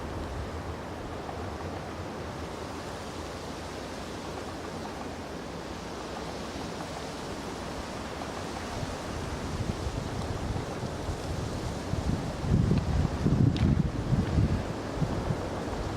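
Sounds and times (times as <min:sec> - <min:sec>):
low rumbling gusts: 0:00.0 - 0:02.8, 0:07.2 - 0:15.9
rushing outdoor noise: 0:00.0 - 0:15.9.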